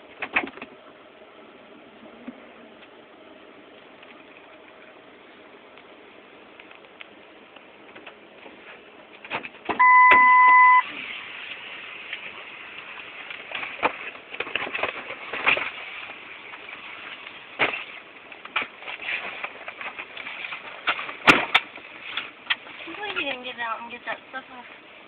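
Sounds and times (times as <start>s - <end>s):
electronic beep: 9.8s - 10.8s.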